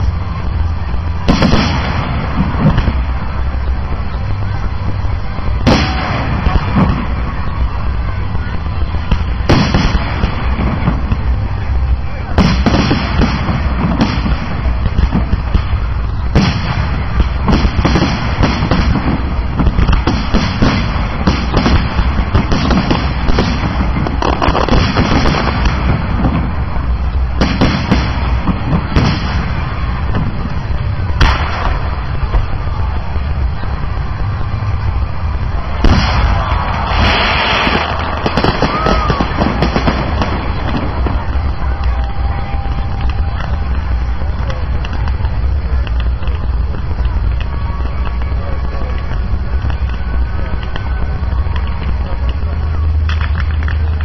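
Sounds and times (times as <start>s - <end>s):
fireworks bangs and crackle: 0.0s - 54.0s
heavy fireworks booms: 0.0s - 54.0s.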